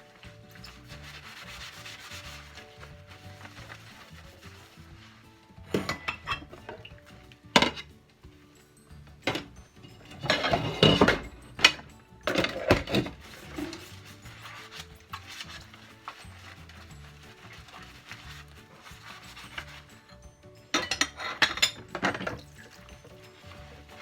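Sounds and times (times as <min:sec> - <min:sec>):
dishes and cutlery clattering: 0:05.6 - 0:16.3, 0:18.7 - 0:24.0.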